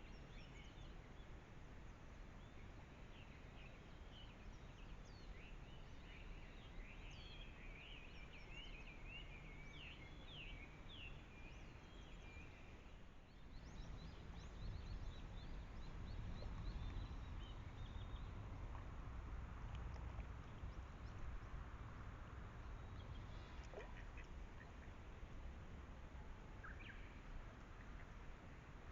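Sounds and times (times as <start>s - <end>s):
birds twittering: 13.3s - 18.9s.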